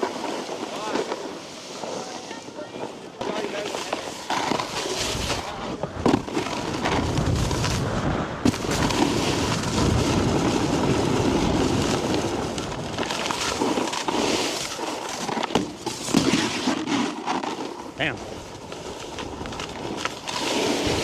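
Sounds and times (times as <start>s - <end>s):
snowboard scraping over snow: 0.0s - 21.0s
wind buffeting microphone: 5.8s - 13.0s.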